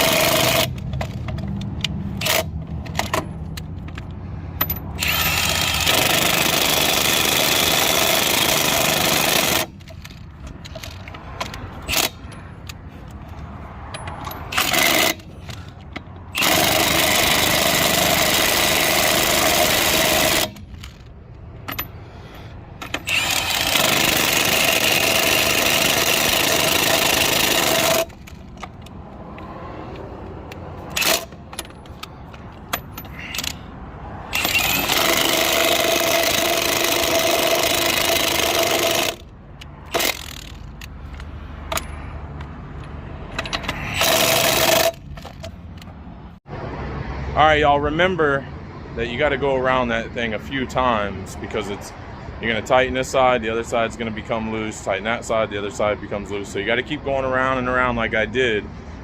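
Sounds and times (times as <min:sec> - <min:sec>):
handling noise: 0:20.4 - 0:24.0, 0:25.8 - 0:33.6
impact wrench hammering: 0:22.8 - 0:28.3, 0:30.8 - 0:33.6, 0:34.3 - 0:39.2, 0:43.3 - 0:45.5.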